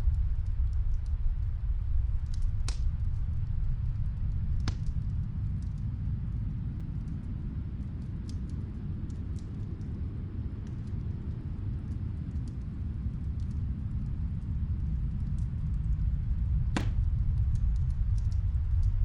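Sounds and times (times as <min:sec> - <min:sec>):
wood fire crackling: 0:00.0 - 0:19.0
sharp fire pops: 0:16.7 - 0:17.9.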